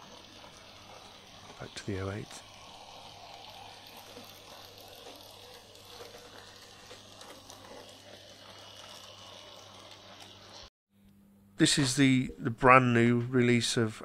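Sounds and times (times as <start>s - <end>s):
model train motor hum: 0.0s - 10.7s
small wheels rolling on track: 0.0s - 10.7s.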